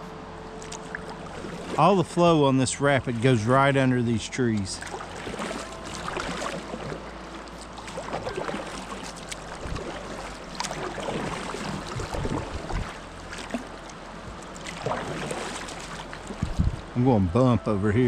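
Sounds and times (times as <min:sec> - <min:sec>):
river rapid water splashing: 0:00.0 - 0:18.0
small splashes and knocks: 0:00.6 - 0:02.0, 0:04.5 - 0:16.9.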